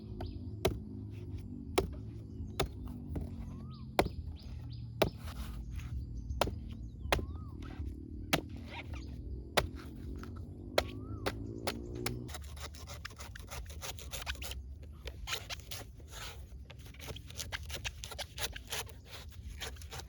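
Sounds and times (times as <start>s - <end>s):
birds chirping: 0.0s - 12.3s
axe chopping wood: 0.0s - 12.7s.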